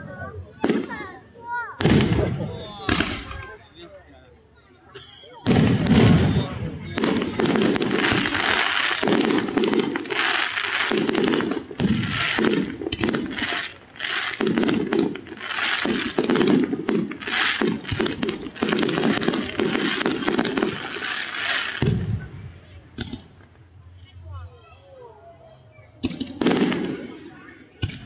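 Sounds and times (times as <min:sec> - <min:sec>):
aerial fireworks bursts: 0:01.8 - 0:03.6, 0:05.4 - 0:22.3, 0:26.0 - 0:28.0.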